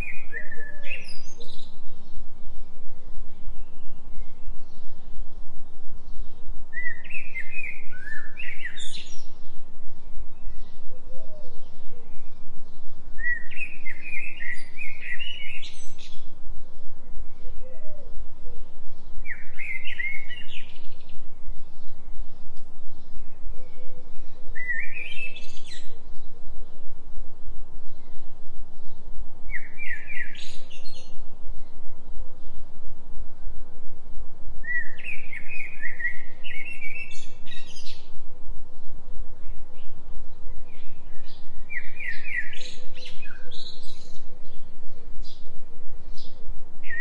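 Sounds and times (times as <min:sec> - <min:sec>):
songbird warbling: 0:00.0 - 0:02.3, 0:06.1 - 0:26.9, 0:34.6 - 0:47.0
pulsing deep binaural hum: 0:00.0 - 0:47.0.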